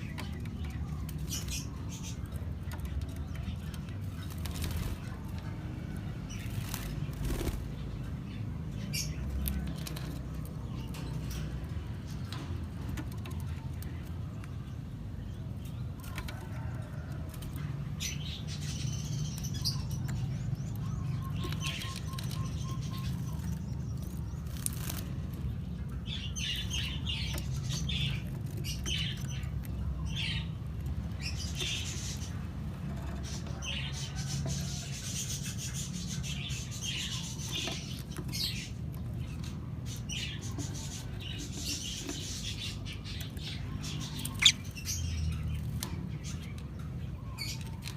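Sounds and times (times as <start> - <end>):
lovebirds chirping: 0.0 - 47.9
wings flapping and rustling: 0.3 - 8.1, 23.1 - 25.8.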